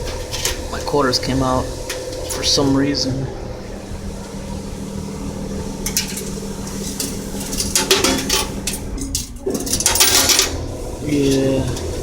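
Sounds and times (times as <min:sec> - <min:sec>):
steady low hum: 0:00.0 - 0:12.0
coins clinking in vending machine: 0:06.9 - 0:12.0.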